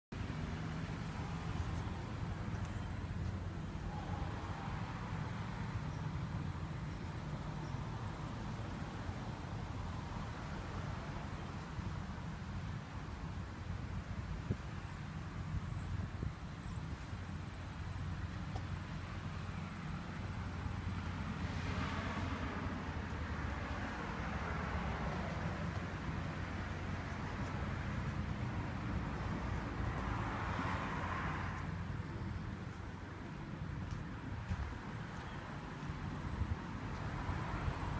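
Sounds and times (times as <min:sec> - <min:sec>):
road traffic rumble: 0:00.1 - 0:37.9
vehicle engine humming: 0:00.1 - 0:37.9
vehicle passing by: 0:19.4 - 0:33.0.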